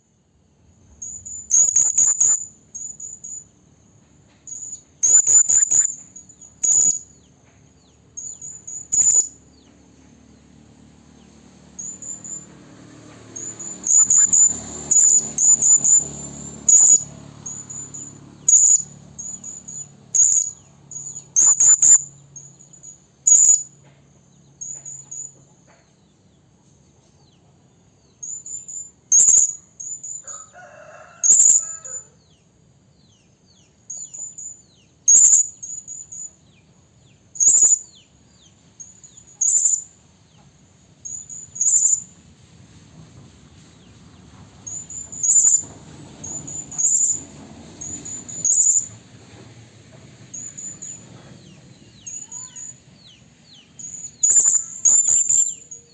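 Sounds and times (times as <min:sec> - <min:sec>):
soft bird twittering: 0:00.9 - 0:03.5, 0:04.4 - 0:09.8, 0:11.7 - 0:12.5, 0:13.3 - 0:23.8, 0:28.1 - 0:32.0, 0:33.5 - 0:36.6, 0:37.3 - 0:40.0, 0:41.1 - 0:42.1, 0:44.7 - 0:49.0, 0:50.3 - 0:55.9
parrot shrill calls: 0:04.6 - 0:06.0, 0:13.4 - 0:22.1, 0:28.4 - 0:32.1, 0:52.1 - 0:52.8, 0:53.8 - 0:55.9.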